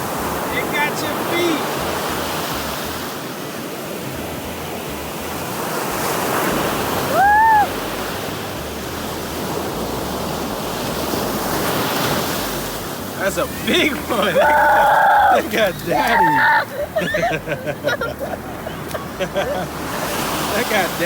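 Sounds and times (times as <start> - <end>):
ocean waves on shore: 0.0 - 21.0.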